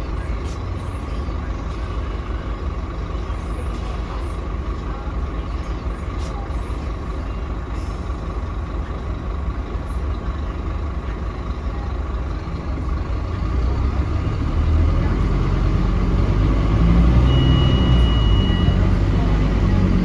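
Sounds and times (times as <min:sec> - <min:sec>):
bus diesel engine rumbling: 0:00.0 - 0:20.0
steady high beep: 0:16.5 - 0:20.0.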